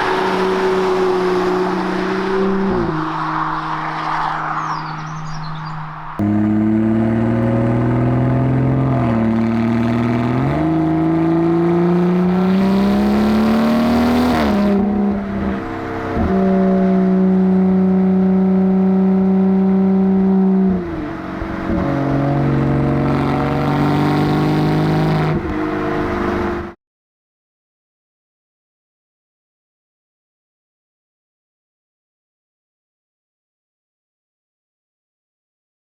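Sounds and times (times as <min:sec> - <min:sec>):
car engine and exhaust revving: 0:00.0 - 0:26.8.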